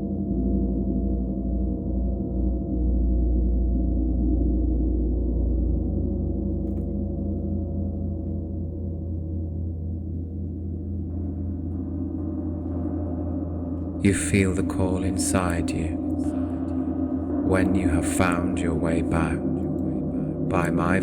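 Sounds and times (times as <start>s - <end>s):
gong drone: 8.2s - 21.0s.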